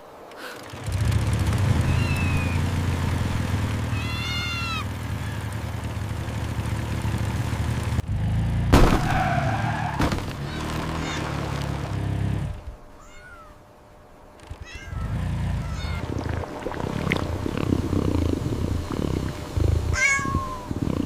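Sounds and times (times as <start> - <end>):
loud rough noise: 0.6 - 9.1, 14.4 - 21.0
cat meowing: 1.8 - 2.6, 3.9 - 5.5, 10.4 - 11.3, 13.0 - 13.6, 14.6 - 16.0, 19.6 - 20.8
steady low rumble: 14.5 - 21.0.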